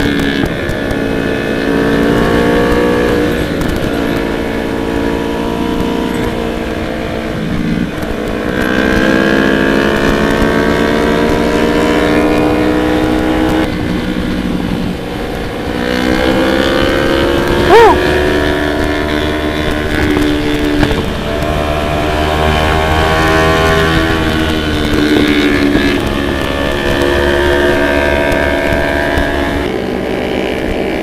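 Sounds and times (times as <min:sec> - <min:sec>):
motorcycle engine revving: 0:00.0 - 0:31.0
wind rumble: 0:00.0 - 0:31.0.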